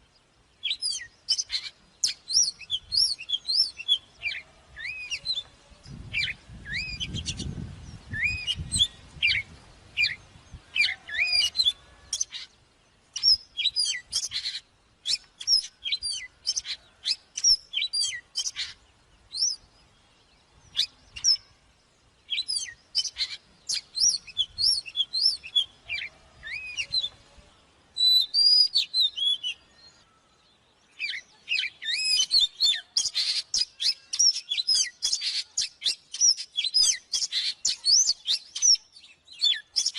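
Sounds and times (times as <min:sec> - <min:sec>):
bird singing whistled notes: 0:00.0 - 0:12.5, 0:13.1 - 0:27.3, 0:27.9 - 0:39.9.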